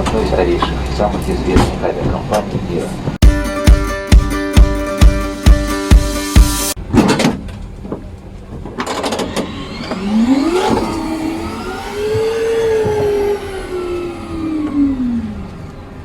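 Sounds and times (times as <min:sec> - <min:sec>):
airliner machine whine: 0:08.4 - 0:16.0.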